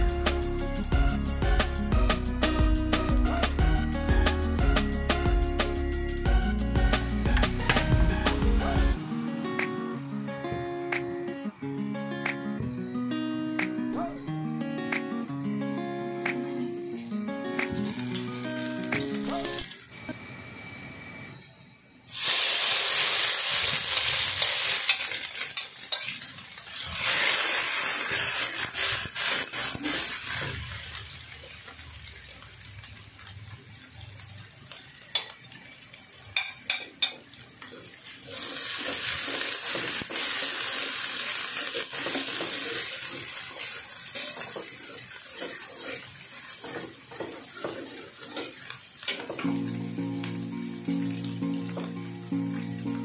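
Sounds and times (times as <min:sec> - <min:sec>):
food sizzling in hot oil: 0:16.4 - 0:20.0, 0:22.1 - 0:53.0
metal spatula scraping a pan: 0:44.1 - 0:49.2.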